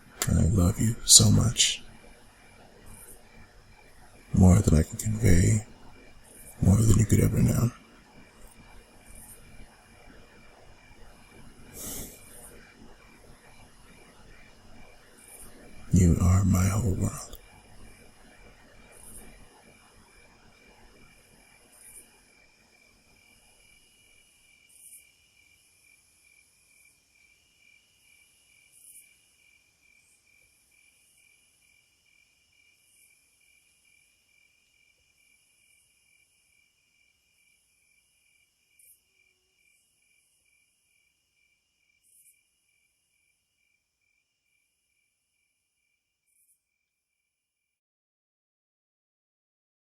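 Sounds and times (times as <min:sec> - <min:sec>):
crickets chirping: 0:00.0 - 0:47.4
high-pitched insect calls: 0:35.2 - 0:46.6.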